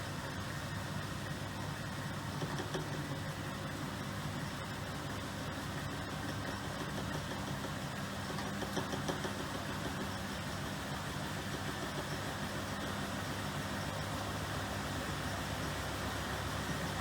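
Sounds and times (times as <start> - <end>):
washing machine running: 0.0 - 17.0.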